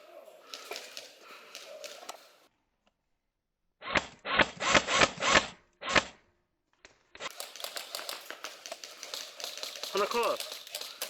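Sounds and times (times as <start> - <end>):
airsoft guns firing bursts: 0.5 - 2.3, 7.2 - 11.0.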